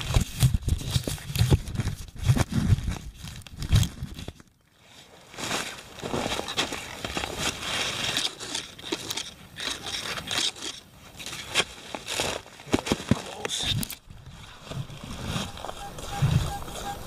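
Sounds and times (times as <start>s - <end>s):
digging tool scraping soil: 5.0s - 17.0s.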